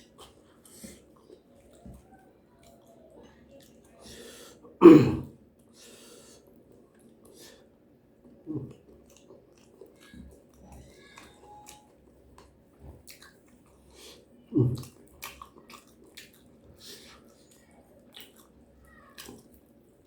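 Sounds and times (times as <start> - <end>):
person chewing food: 5.6 - 20.0.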